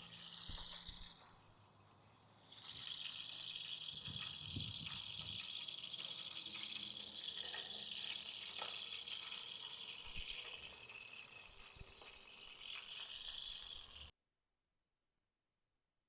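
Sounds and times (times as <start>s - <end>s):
fish sizzling in hot oil: 0.0s - 1.2s, 2.4s - 14.1s.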